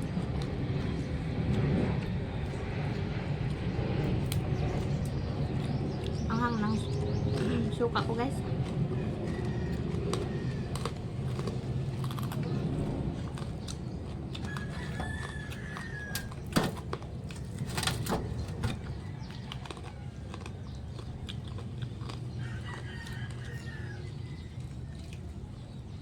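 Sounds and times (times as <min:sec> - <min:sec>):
steady low hum: 0:00.0 - 0:26.0
sharp crunches or clicks: 0:08.6 - 0:23.4
rooster crowing: 0:08.9 - 0:11.3, 0:14.3 - 0:16.5, 0:18.7 - 0:20.7, 0:22.3 - 0:25.1.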